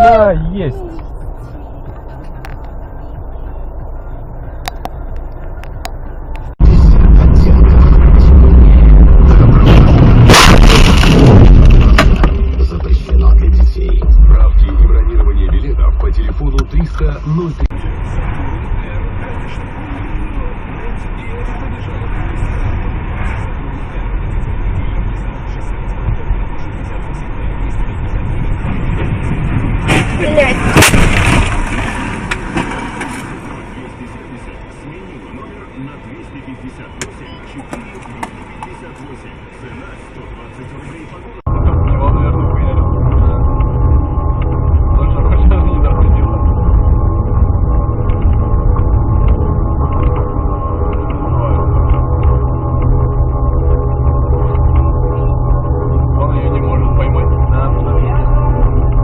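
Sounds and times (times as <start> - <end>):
car engine and road rumble: 0.0 - 59.0
heavy low rumble: 0.0 - 59.0
harsh sudden burst: 6.6 - 12.6.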